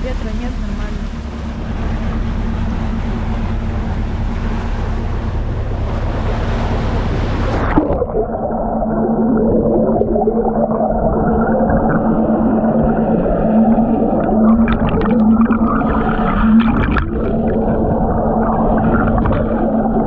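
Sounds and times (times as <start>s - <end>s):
ship engine running: 0.0s - 20.0s
water churning: 0.0s - 20.0s.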